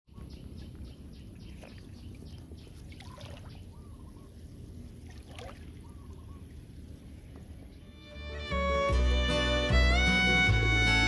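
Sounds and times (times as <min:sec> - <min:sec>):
water splashing and trickling: 0:00.4 - 0:07.9
crackling splashes: 0:01.5 - 0:03.7, 0:04.9 - 0:07.2.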